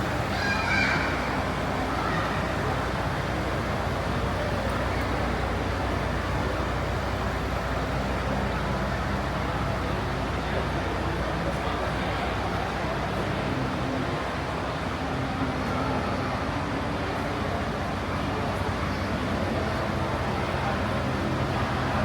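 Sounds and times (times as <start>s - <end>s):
outdoor noise: 0.0s - 22.0s
truck engines idling: 0.0s - 22.0s.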